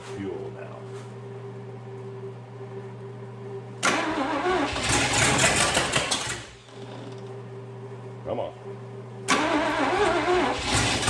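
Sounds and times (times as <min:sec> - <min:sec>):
engine starter cranking: 0:03.8 - 0:07.2, 0:09.3 - 0:11.0.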